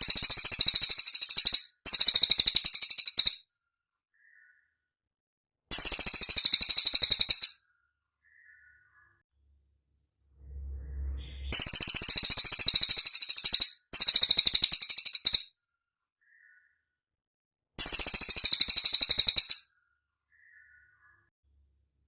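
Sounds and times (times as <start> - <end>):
faint low rumble: 9.4 - 12.3.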